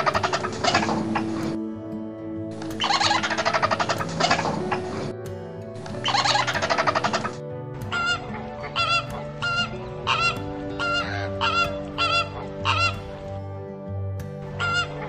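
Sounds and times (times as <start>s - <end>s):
flamingos honking: 0.0s - 1.6s, 2.8s - 5.1s, 5.8s - 13.4s, 14.4s - 15.0s.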